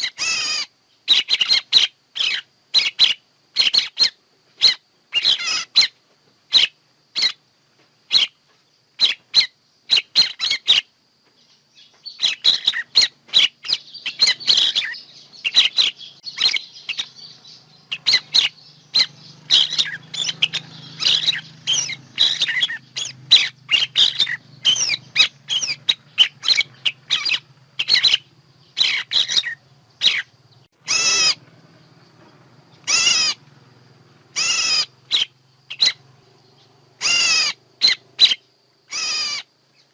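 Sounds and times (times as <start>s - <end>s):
birds chirping and whistling: 0.0s - 7.4s, 8.1s - 39.9s
long wavering bird calls: 0.0s - 39.9s.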